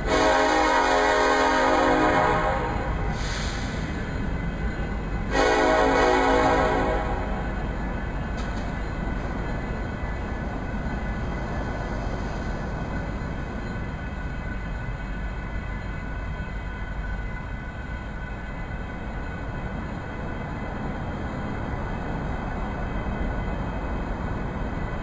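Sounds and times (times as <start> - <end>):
steel wheels on rails: 0.0 - 25.0.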